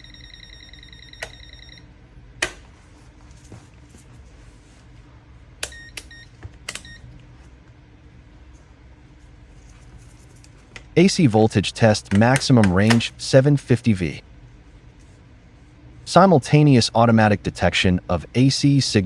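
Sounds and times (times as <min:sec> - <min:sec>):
multimeter buzzer beeping: 0:00.0 - 0:01.9, 0:05.6 - 0:07.0
multimeter clicks: 0:02.4 - 0:02.7, 0:05.6 - 0:07.0, 0:12.1 - 0:13.1.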